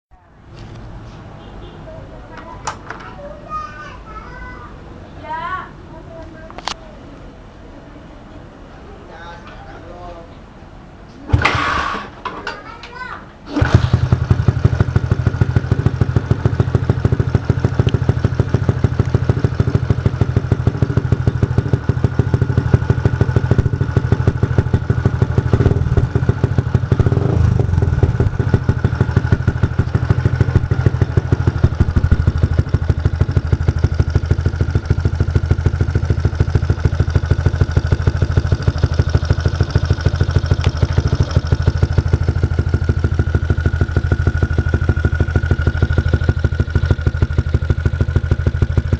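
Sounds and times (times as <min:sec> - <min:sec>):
motorcycle engine idling: 0:13.5 - 0:48.9.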